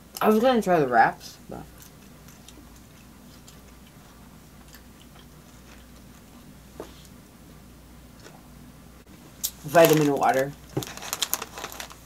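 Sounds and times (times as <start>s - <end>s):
chewing with wet mouth clicks: 1.7s - 6.3s.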